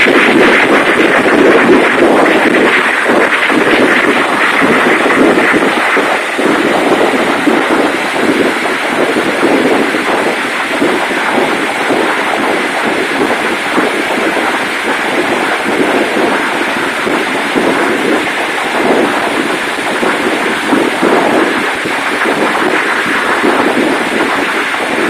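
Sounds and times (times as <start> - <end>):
fireworks rumbling: 0.0 - 25.0.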